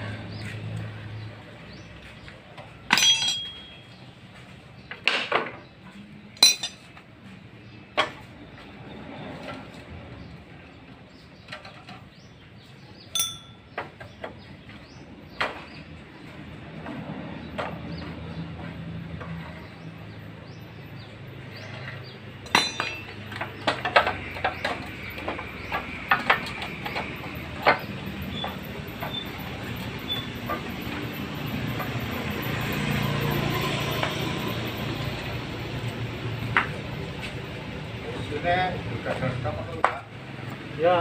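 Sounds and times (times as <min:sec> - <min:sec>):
metal engine parts clinking: 0:02.8 - 0:04.1, 0:06.4 - 0:07.1, 0:13.1 - 0:14.0, 0:21.6 - 0:32.5
short ringing metal notes: 0:02.9 - 0:03.9, 0:13.2 - 0:13.7, 0:22.5 - 0:23.2.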